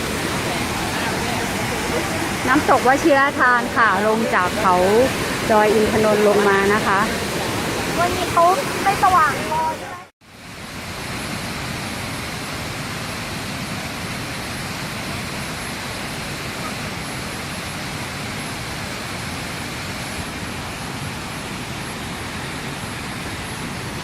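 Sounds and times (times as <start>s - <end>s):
waterfall crashing: 0.0s - 10.1s.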